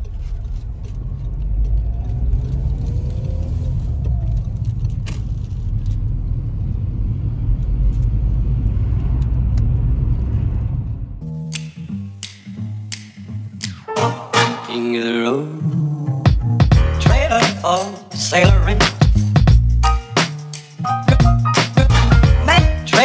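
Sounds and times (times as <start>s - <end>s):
car driving rumble: 0.0s - 11.3s.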